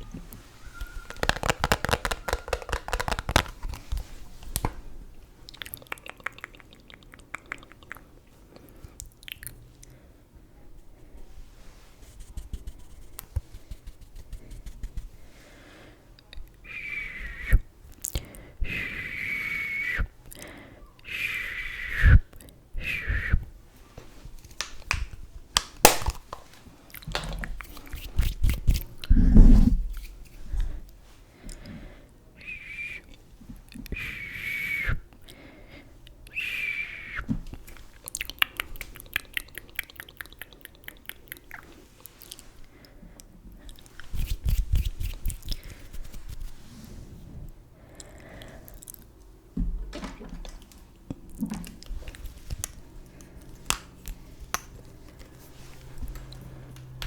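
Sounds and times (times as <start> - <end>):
cosmetic packaging clicks and taps: 1.0 - 4.0, 24.5 - 27.4.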